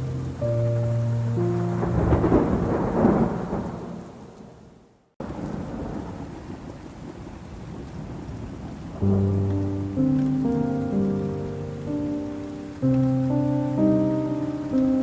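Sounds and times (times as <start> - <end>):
rain falling: 0.0 - 15.0
thunder rolling: 0.4 - 6.6.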